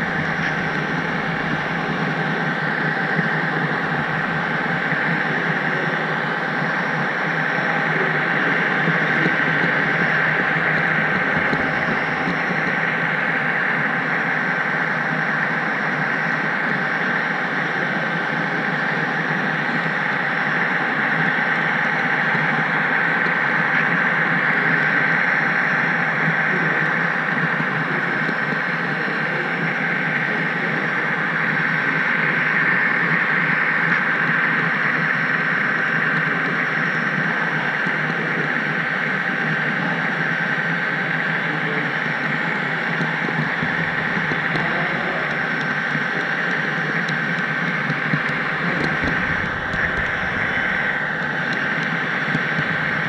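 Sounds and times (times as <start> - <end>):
high whine: 0.0 - 53.0
model train running: 0.0 - 53.0.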